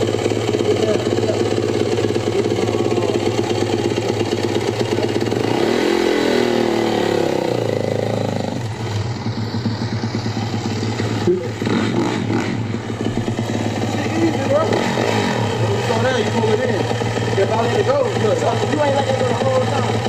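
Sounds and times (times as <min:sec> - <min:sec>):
dirt bike engine idling and revving: 0:00.0 - 0:20.0.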